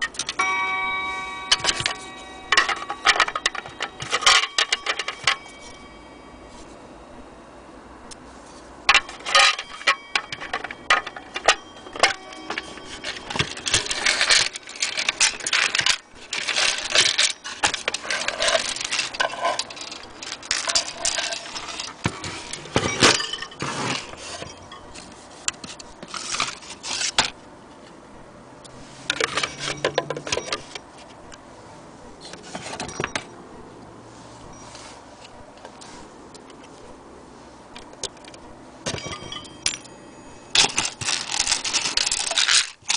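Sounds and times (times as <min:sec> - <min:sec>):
metal clock parts clinking: 0:00.0 - 0:06.2, 0:08.8 - 0:27.3, 0:29.1 - 0:30.8, 0:32.5 - 0:33.4, 0:37.8 - 0:42.9.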